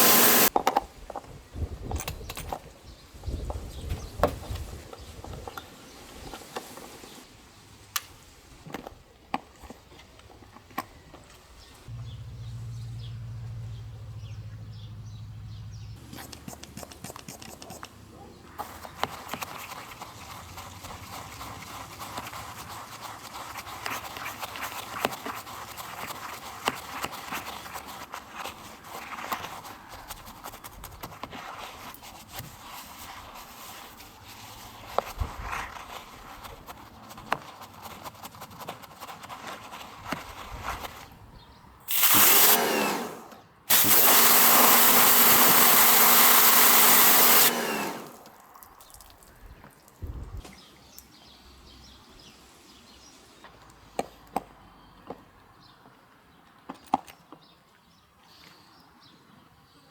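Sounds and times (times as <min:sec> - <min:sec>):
brush scrubbing: 0:00.0 - 0:00.5, 0:16.0 - 0:41.0, 0:43.7 - 0:48.4.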